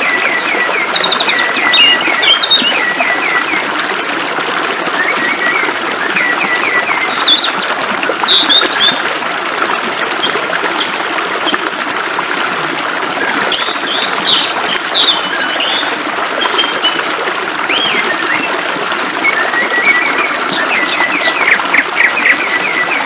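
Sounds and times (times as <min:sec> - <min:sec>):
songbirds chirping: 0:00.0 - 0:03.6, 0:13.5 - 0:17.0, 0:17.7 - 0:23.0
flowing water: 0:00.0 - 0:23.0.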